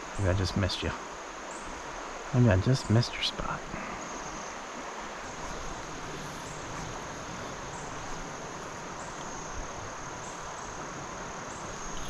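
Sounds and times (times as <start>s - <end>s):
high insect trill: 0.0s - 12.0s
mountain stream rushing: 0.0s - 12.0s.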